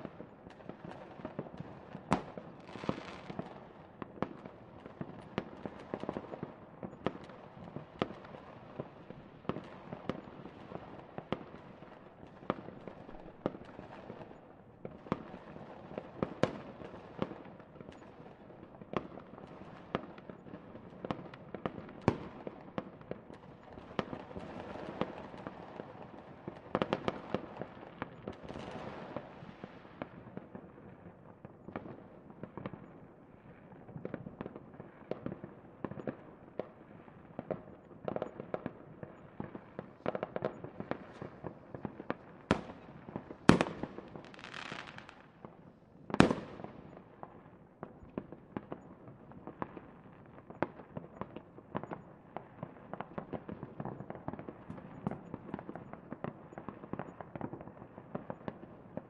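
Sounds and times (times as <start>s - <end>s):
fireworks bangs and pops: 0.0s - 59.0s
fireworks crackling hiss: 2.6s - 3.4s, 43.5s - 45.2s.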